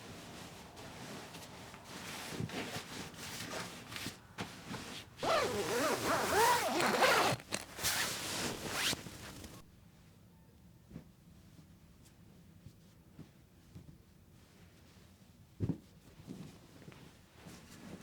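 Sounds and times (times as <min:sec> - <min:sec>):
fabric rustling and scraping: 0:00.0 - 0:09.6
squeaky fabric sliding: 0:05.2 - 0:09.6.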